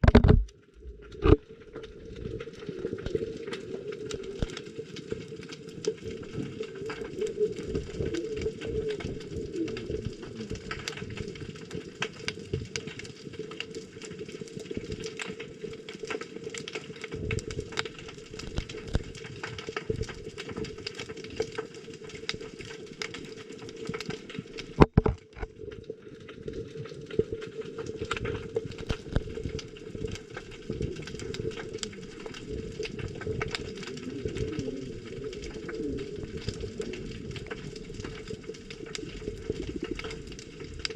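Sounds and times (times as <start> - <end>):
muffled underwater rush: 0.0 - 11.9, 28.4 - 40.9
crackle of small clicks: 0.0 - 40.9.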